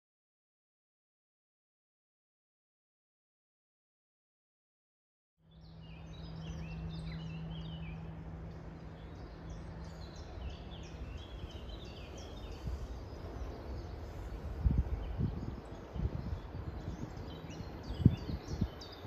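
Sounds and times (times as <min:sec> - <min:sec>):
low outdoor rumble: 0:05.4 - 0:19.0
songbirds chirping: 0:05.4 - 0:19.0
steady low hum: 0:05.4 - 0:19.0.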